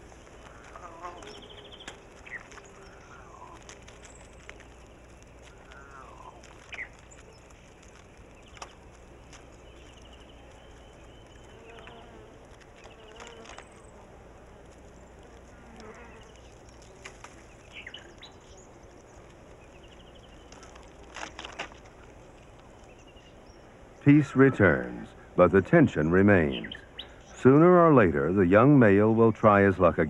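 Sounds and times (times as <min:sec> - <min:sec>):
bird calls and chirping trills: 0:00.0 - 0:14.0, 0:14.8 - 0:30.0
sharp clicks: 0:01.2 - 0:13.8.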